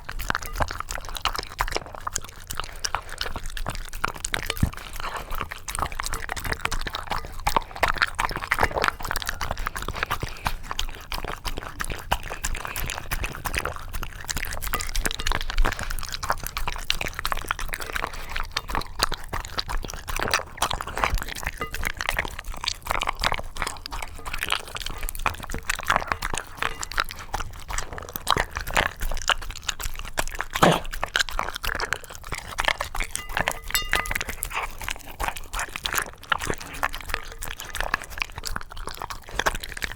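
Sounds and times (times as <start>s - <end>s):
dog licking and chewing: 0.0s - 39.9s
clink against dish: 14.7s - 15.7s, 33.1s - 34.4s.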